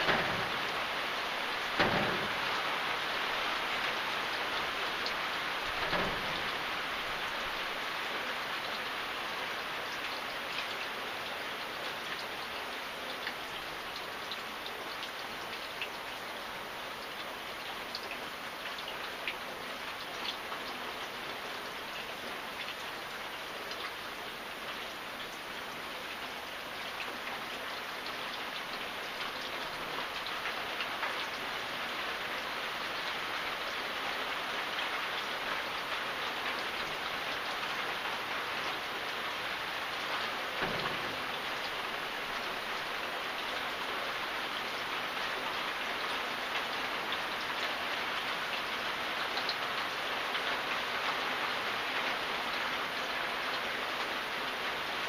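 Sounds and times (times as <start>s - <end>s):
steady rain falling: 0.0s - 55.0s
low thump: 1.8s - 2.4s.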